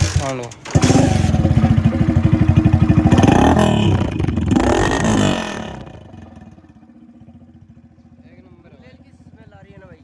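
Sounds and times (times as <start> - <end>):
two-stroke engine revving: 0.0 - 8.0.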